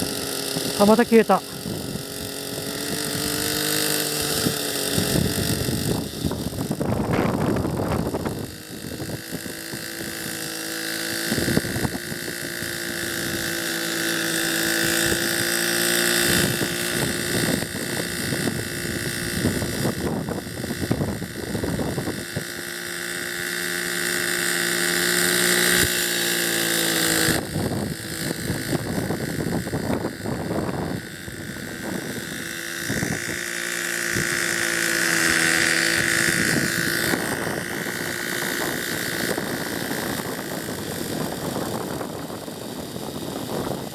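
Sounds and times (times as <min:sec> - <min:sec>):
model helicopter engine and rotors: 0:00.0 - 0:43.9
wind buffeting microphone: 0:04.3 - 0:10.1, 0:35.6 - 0:43.9.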